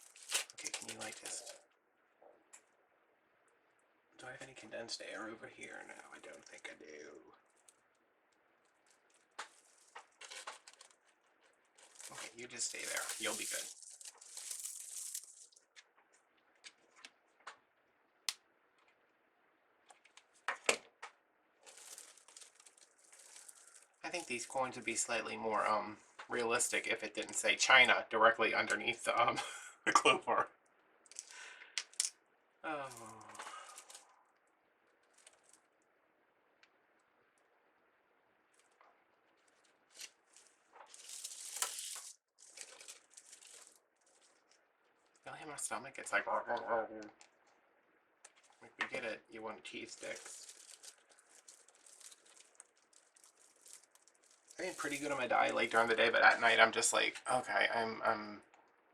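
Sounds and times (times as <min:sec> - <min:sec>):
soft rustling: 0:07.4 - 0:17.4, 0:21.6 - 0:24.4, 0:38.4 - 0:45.3, 0:48.2 - 0:48.7, 0:49.8 - 0:56.0.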